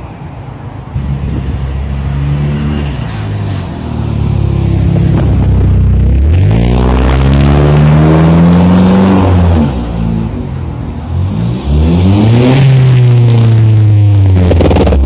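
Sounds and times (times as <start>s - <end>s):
car engine revving: 1.0s - 15.0s.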